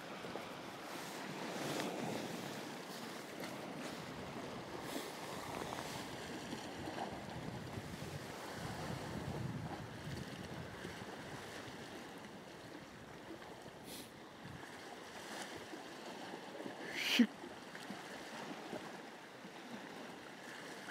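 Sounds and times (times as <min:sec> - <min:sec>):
sea waves washing against rocks: 0:00.0 - 0:16.9
wind buffeting microphone: 0:03.8 - 0:11.8.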